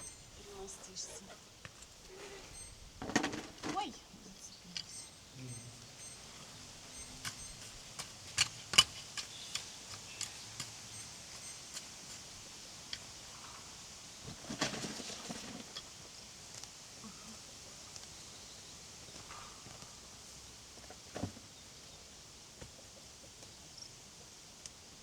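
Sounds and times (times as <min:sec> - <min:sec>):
rustling: 0:00.0 - 0:16.8.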